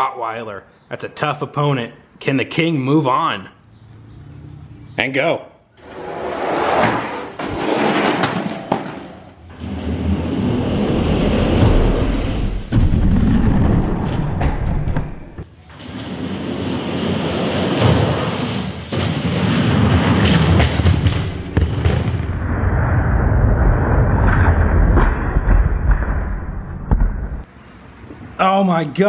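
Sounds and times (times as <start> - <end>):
toy trucks rumbling down plastic track: 5.8 - 10.0
knocks and thuds: 6.7 - 9.4, 12.7 - 15.5.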